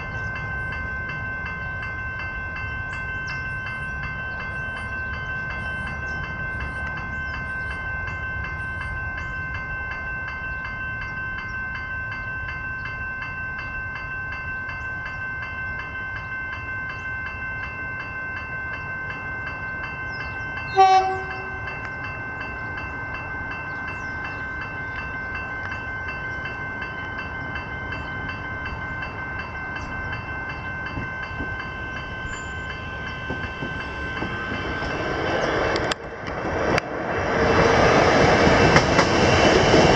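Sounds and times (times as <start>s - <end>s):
train running noise: 0.0s - 39.9s
train horn blast: 20.7s - 21.9s.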